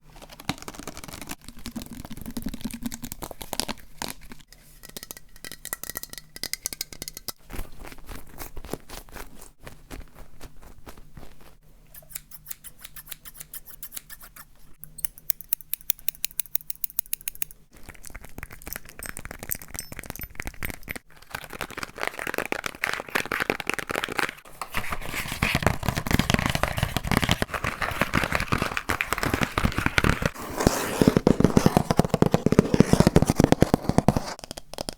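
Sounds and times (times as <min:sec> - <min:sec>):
clicks on objects: 0:04.8 - 0:07.4
scratching on objects: 0:07.4 - 0:14.8, 0:16.7 - 0:34.9.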